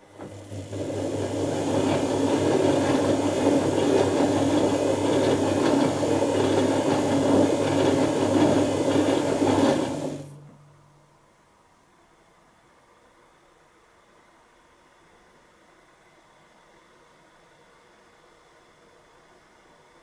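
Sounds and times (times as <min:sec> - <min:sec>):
water and laundry churning: 0:00.0 - 0:10.4
washing machine motor hum: 0:00.0 - 0:11.2.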